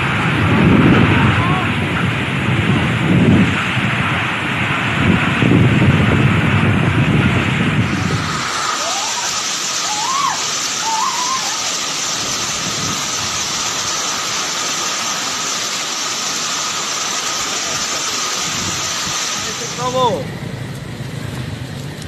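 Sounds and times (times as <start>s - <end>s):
heavy rain: 0.0s - 22.0s
strong wind: 0.0s - 22.0s
short rising-and-falling cries: 7.9s - 12.5s.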